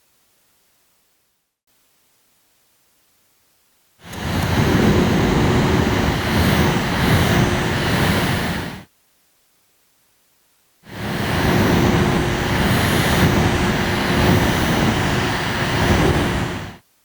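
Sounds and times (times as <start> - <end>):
air conditioner fan blowing: 4.0 - 8.9, 10.9 - 16.8.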